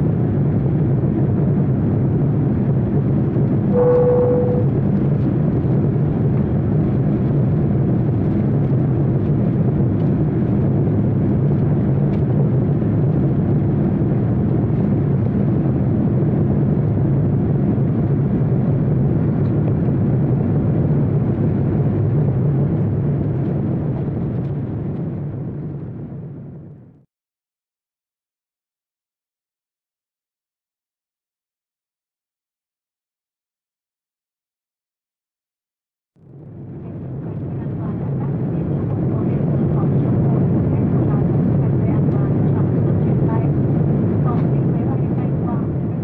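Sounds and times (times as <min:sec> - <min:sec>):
vehicle engine drone: 0:00.0 - 0:26.9
short steady tone: 0:03.7 - 0:04.7.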